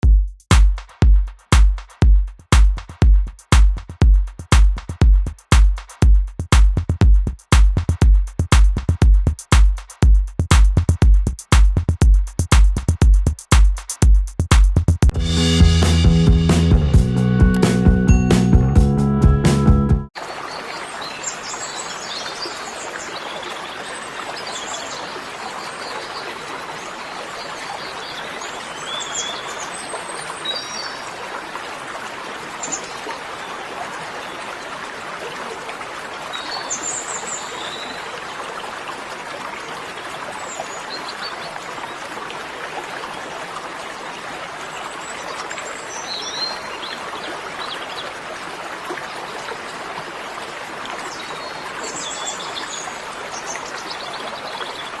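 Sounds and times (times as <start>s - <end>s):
flowing water rushing: 20.2s - 55.0s.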